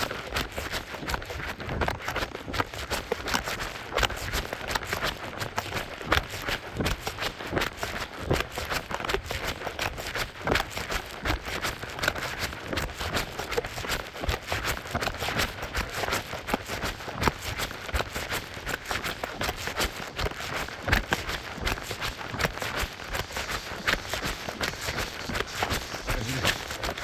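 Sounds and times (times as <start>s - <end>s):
running footsteps: 12.2s - 27.0s.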